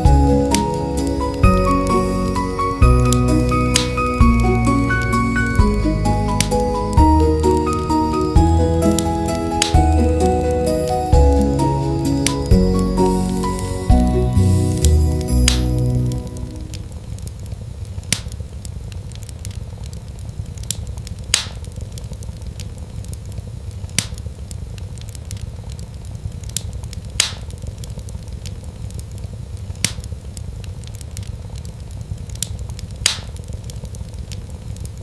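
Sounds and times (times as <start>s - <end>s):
wood fire crackling: 0.0s - 35.0s
sharp fire pops: 16.7s - 35.0s.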